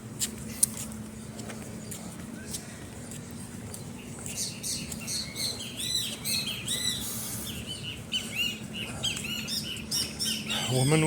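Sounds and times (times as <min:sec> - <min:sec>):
small birds chirping: 0:01.2 - 0:11.0.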